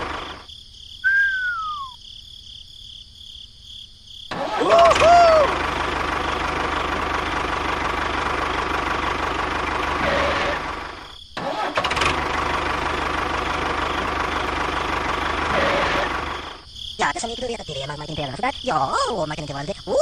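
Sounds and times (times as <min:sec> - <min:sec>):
small engine chugging: 0:04.3 - 0:16.6.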